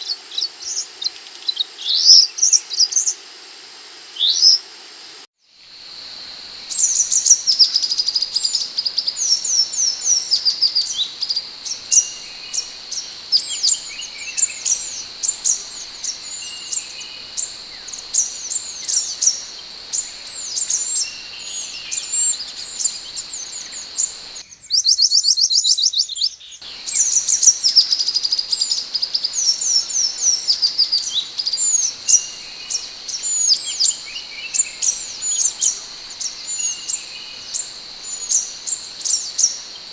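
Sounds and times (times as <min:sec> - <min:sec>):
bird trill: 0:06.5 - 0:24.5, 0:26.6 - 0:39.9.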